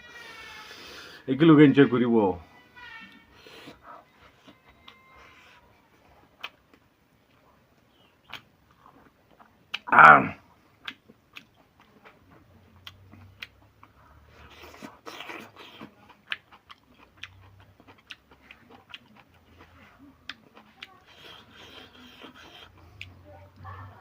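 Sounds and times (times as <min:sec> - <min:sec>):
person chewing food: 0:03.0 - 0:09.9, 0:10.7 - 0:23.2.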